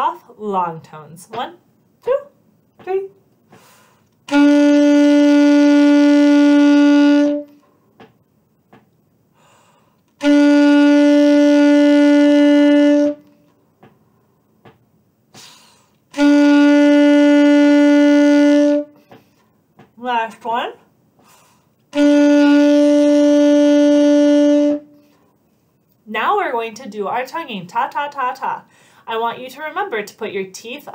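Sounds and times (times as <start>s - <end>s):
saxophone long tones: 4.3s - 7.6s, 10.2s - 13.4s, 16.1s - 19.1s, 21.9s - 25.0s.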